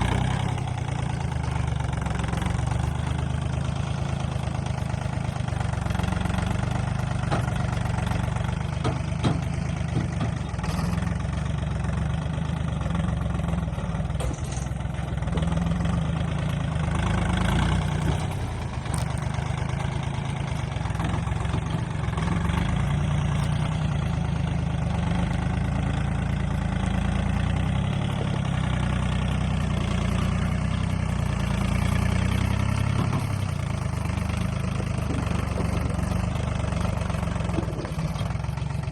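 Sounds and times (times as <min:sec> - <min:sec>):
motor humming steadily: 0:26.8 - 0:38.9.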